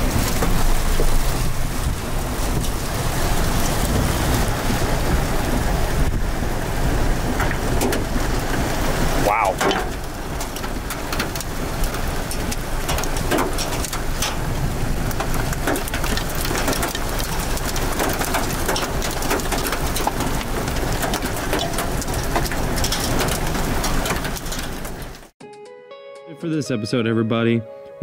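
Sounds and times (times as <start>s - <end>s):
heavy rain: 0.0s - 25.3s
low wind rumble: 0.0s - 25.3s
raindrops hitting microphone: 0.0s - 25.4s.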